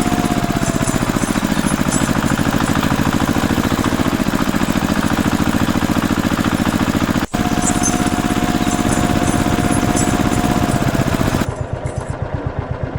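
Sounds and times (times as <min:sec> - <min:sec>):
tractor engine chugging: 0:00.0 - 0:12.9.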